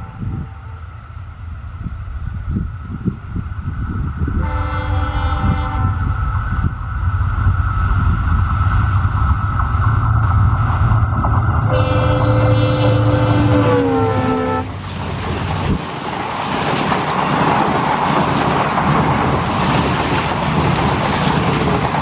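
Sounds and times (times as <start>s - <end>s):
locomotive horn: 0.0s - 0.9s, 4.4s - 6.0s, 11.7s - 14.8s
high whine: 0.0s - 15.8s
diesel locomotive engine rumble: 0.0s - 22.0s.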